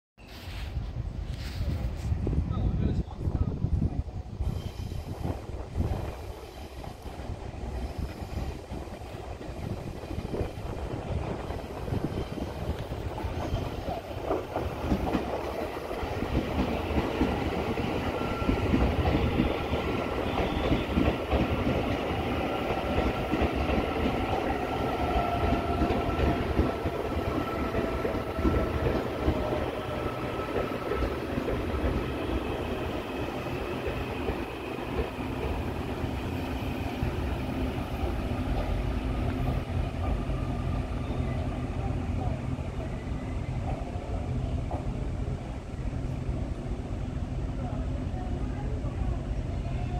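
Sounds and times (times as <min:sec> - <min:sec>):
train wheels clattering over joints: 0:04.6 - 0:36.0.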